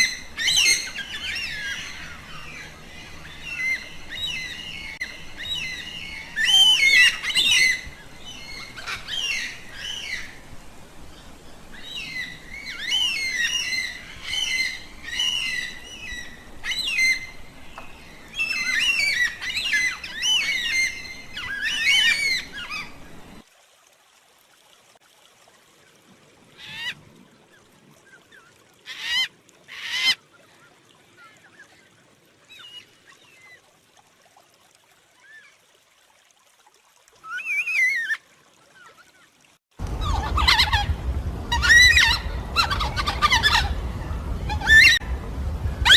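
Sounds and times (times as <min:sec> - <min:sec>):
flock of birds chattering: 0:39.8 - 0:45.9.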